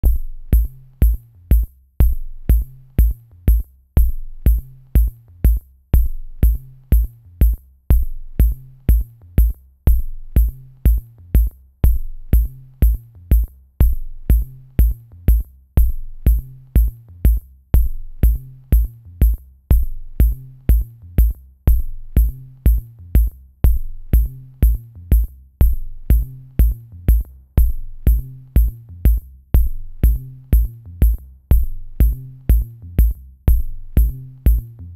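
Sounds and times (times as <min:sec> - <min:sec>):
electronic music with drum-machine beat: 0:00.0 - 0:34.9.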